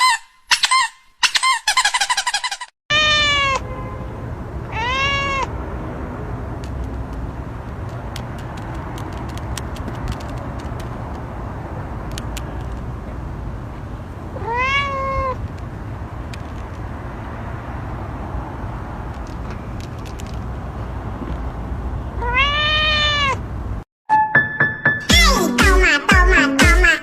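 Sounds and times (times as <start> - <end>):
cat meowing: 2.9 - 3.6, 4.7 - 5.5, 14.4 - 15.4, 22.2 - 23.4.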